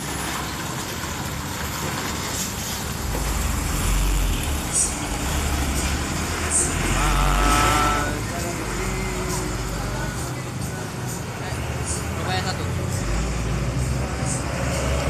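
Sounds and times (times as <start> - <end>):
heavy truck engine rumbling: 0.0 - 15.0
steady pitched tone: 2.8 - 9.1.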